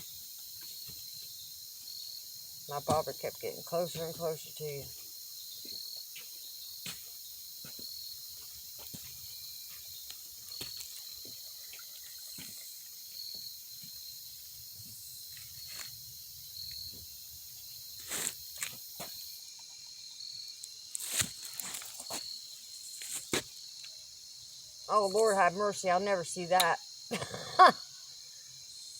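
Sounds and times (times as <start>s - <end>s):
high-pitched insect chorus: 0.0s - 28.9s.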